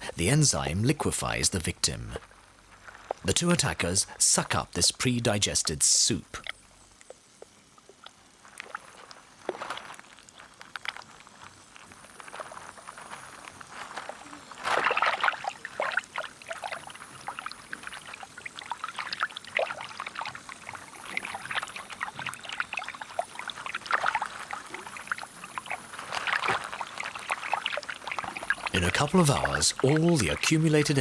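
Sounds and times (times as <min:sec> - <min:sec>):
water sloshing and trickling: 0:02.2 - 0:04.2, 0:06.3 - 0:31.0
small clicks and crackles: 0:06.4 - 0:31.0.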